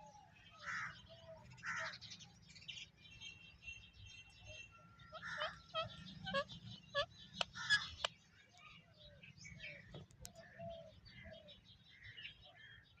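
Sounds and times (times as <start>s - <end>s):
parrot chirping and squawking: 5.1s - 8.1s.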